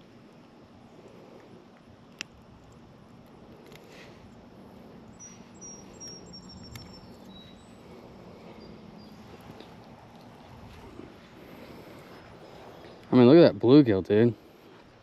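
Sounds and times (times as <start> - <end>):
quiet background hum: 0.0 - 15.0
faint high bird chirps: 5.0 - 7.9.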